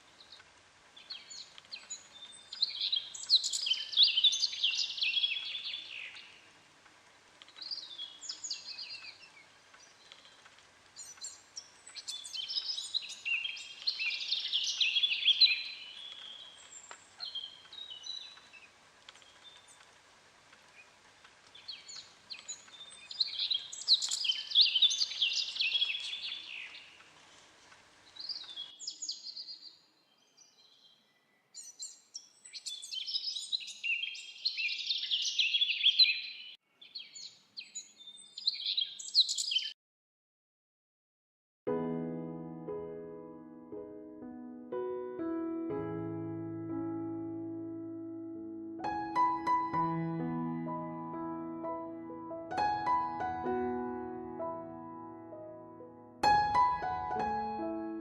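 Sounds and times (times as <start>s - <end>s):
songbird warbling: 1.2s - 6.4s, 11.0s - 18.6s, 21.6s - 27.1s.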